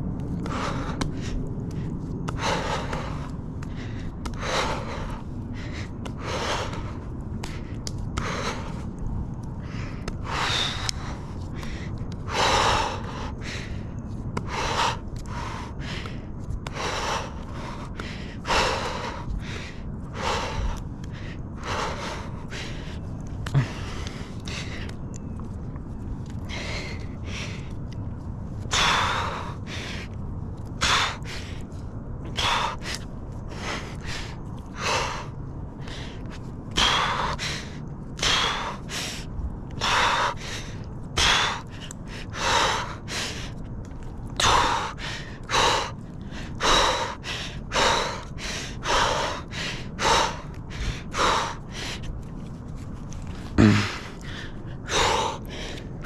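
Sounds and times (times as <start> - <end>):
person breathing heavily: 0.1 - 56.0
person grunting: 53.6 - 54.1.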